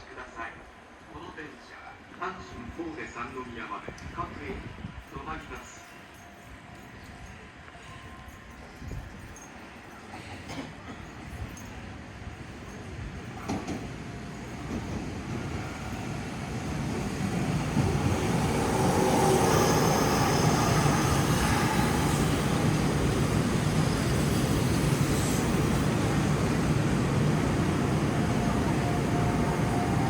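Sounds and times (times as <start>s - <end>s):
electric train running: 13.5s - 30.0s.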